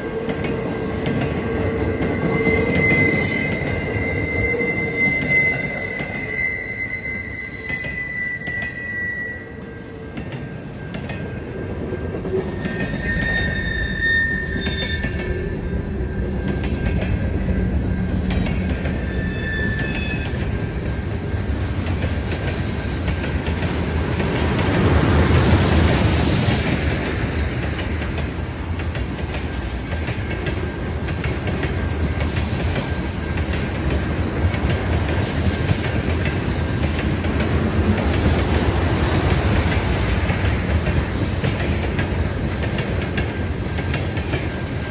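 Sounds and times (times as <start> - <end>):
train rumbling on rails: 0.0 - 44.9
wheel squeals: 1.7 - 9.8, 12.4 - 21.0, 30.0 - 33.7.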